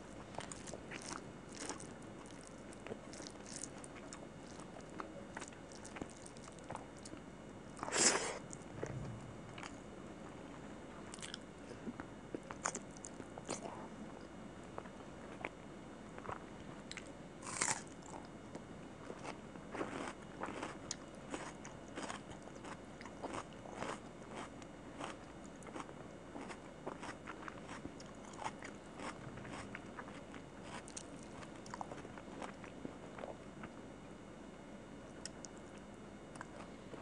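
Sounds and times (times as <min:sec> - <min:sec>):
crunchy bite: 0:00.3 - 0:07.1, 0:16.2 - 0:18.2.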